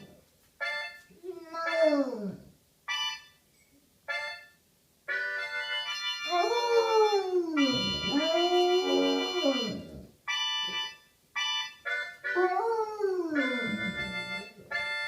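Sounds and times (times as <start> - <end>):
harmonica chords: 0.0 - 2.2, 2.9 - 3.4, 4.1 - 15.0
dog howling: 6.3 - 10.0.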